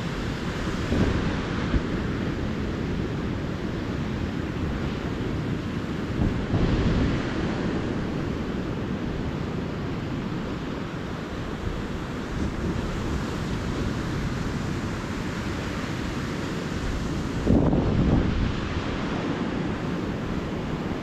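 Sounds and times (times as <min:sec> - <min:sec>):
small waves breaking on beach: 0:00.0 - 0:21.0.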